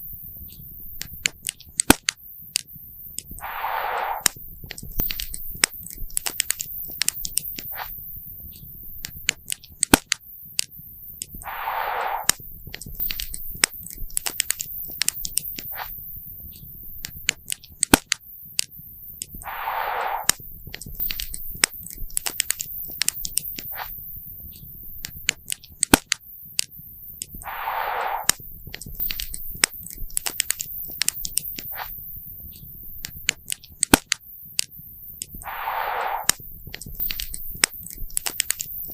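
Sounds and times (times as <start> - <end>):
rushing noise: 3.4 - 4.3, 11.4 - 12.4, 19.4 - 20.4, 27.4 - 28.4, 35.4 - 36.4.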